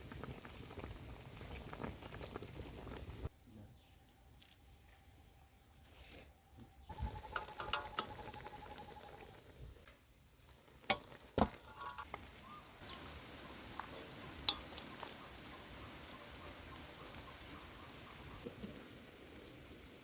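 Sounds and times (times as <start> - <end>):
food sizzling in a pan: 10.9 - 20.0.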